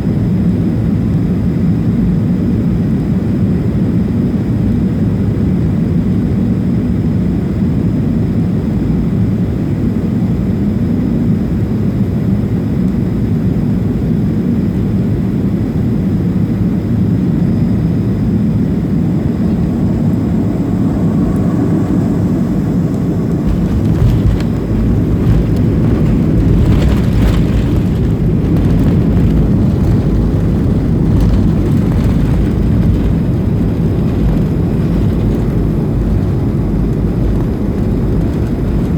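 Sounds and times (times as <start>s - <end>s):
jet engine rumble in cabin: 0.0s - 38.9s
runway rumble with rattling: 18.5s - 38.9s
aircraft touchdown bump: 23.0s - 38.9s.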